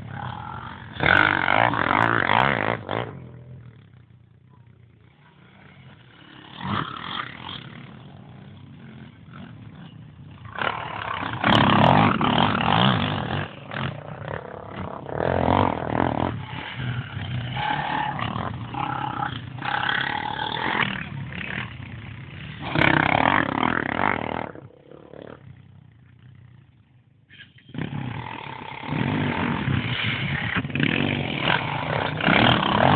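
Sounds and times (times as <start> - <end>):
quad bike engine revving: 0.0 - 26.7, 27.3 - 32.9.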